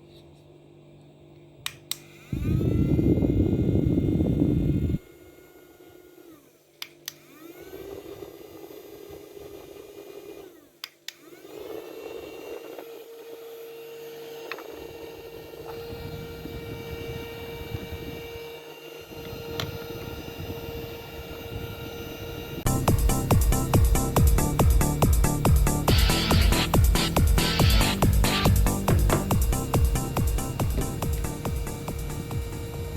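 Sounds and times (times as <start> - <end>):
small fan motor whirring: 0.0 - 32.9
fan switch clicks: 1.3 - 2.1, 6.8 - 7.3, 10.8 - 11.3.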